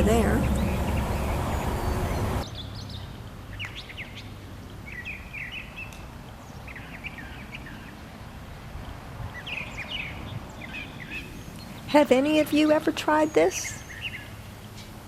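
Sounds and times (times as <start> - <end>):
low background rumble: 0.0 - 2.4
birds chirping: 0.0 - 8.0, 9.3 - 15.0.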